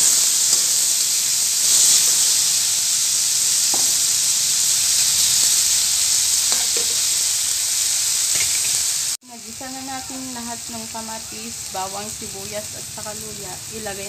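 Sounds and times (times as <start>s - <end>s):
vegetables sizzling in hot oil: 0.0s - 14.0s
metal ladle scraping a pan: 6.5s - 7.2s, 8.3s - 8.8s.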